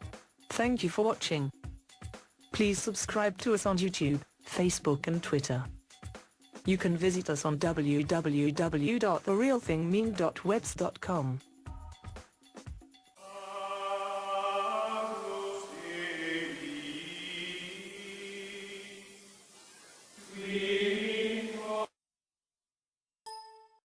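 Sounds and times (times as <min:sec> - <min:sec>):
choir-like chanting voices: 0:13.2 - 0:19.3, 0:20.2 - 0:21.9.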